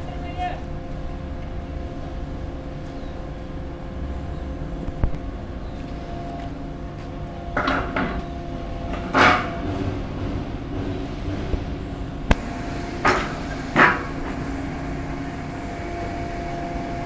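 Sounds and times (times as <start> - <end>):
tractor engine running: 12.2 - 17.0
clattering knocks: 12.3 - 17.0
harsh burst: 12.3 - 17.0.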